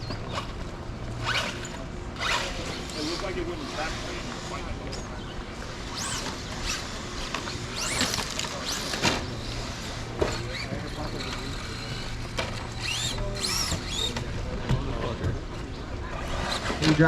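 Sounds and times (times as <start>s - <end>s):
background chatter: 0.0s - 17.0s
electric toy car motors whining: 1.2s - 14.3s.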